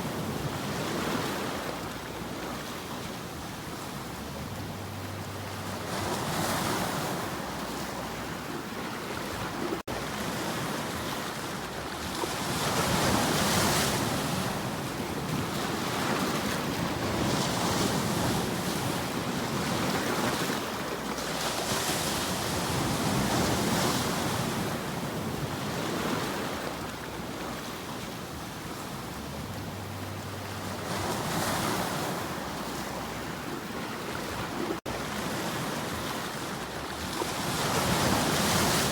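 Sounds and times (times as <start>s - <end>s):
ocean waves washing on shore: 0.0s - 38.9s.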